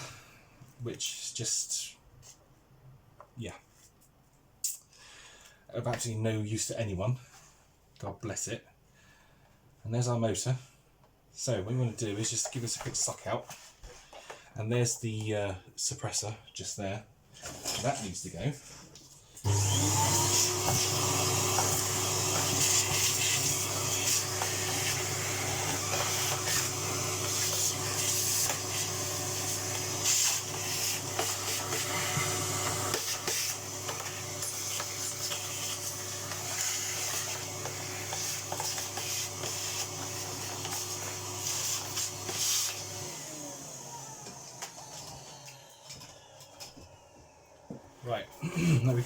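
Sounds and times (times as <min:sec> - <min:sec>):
vacuum motor winding down: 0:19.4 - 0:47.9
vacuum cleaner running: 0:19.4 - 0:48.0.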